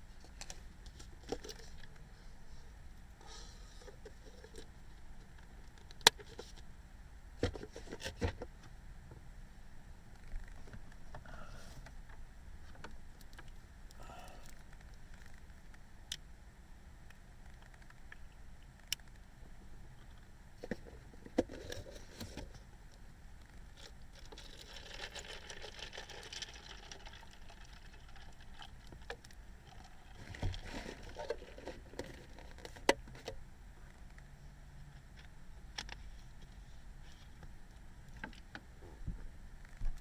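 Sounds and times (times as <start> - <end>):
rustling: 29.6 - 32.8.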